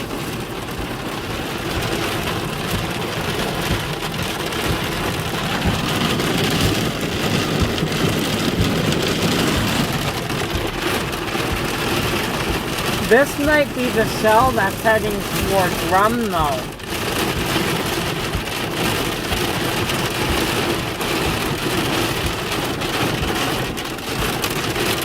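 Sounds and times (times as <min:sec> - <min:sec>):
hail and rain on vehicle roof: 0:00.0 - 0:25.0.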